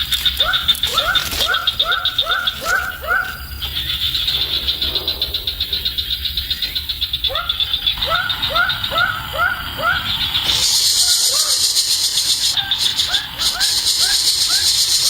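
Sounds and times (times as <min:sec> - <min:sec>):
pulsing high-pitched buzz: 0:07.9 - 0:15.0.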